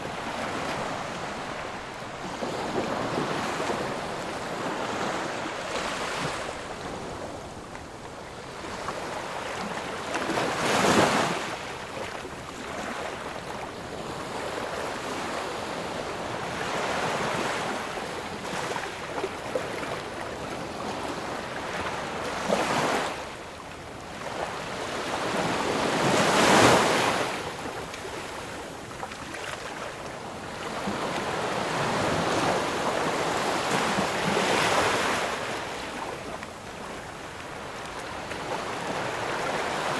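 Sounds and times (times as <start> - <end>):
waves breaking: 0.0 - 7.9.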